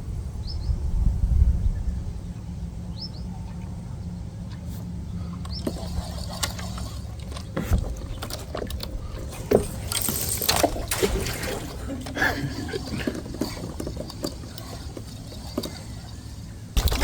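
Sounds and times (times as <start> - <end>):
wind rumbling on microphone: 0.0 - 4.3
gear knocking on kayak: 5.4 - 17.0
water splash: 9.4 - 13.9.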